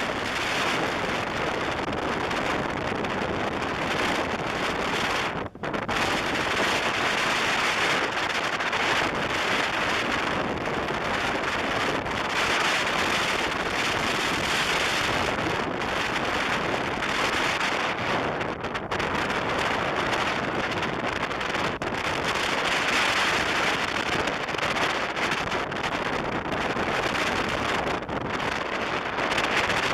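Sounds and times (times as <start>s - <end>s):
road and engine noise: 0.0s - 18.8s
wind roaring over microphone: 0.0s - 29.9s.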